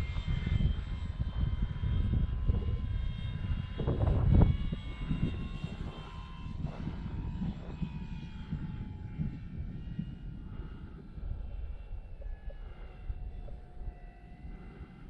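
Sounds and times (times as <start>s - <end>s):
model plane propeller whining: 0.0s - 15.0s
wind rumbling on microphone: 0.0s - 15.0s.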